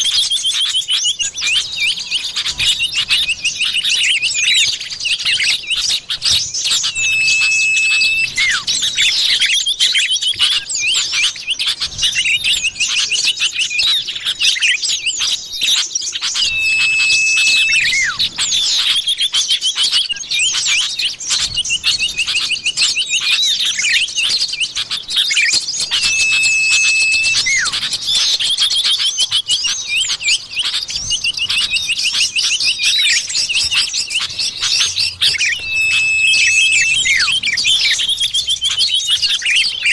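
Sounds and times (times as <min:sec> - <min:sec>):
birds chirping and twittering: 0:00.0 - 0:39.9
long flat whistle: 0:06.3 - 0:09.5, 0:16.2 - 0:19.9, 0:25.1 - 0:29.0, 0:31.7 - 0:38.9.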